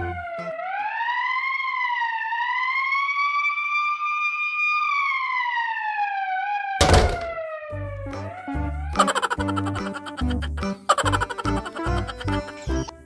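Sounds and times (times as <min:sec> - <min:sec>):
siren-like wailing tone: 0:00.0 - 0:13.0
loud thump: 0:06.8 - 0:07.4.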